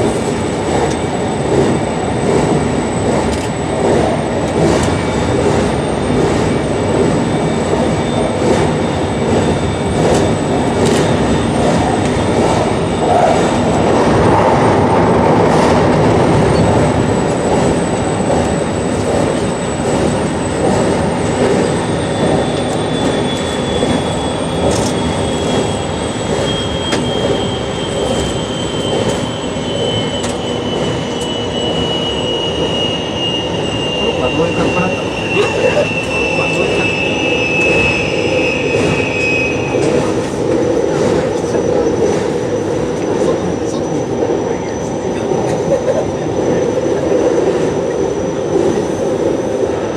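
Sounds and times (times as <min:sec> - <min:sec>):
train wheels on rails: 0:00.0 - 0:49.9.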